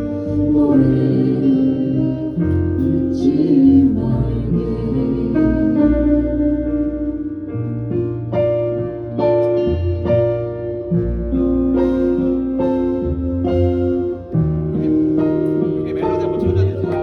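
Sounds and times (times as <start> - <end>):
bass line: 0.0 - 17.0
electric piano chords: 0.0 - 17.0.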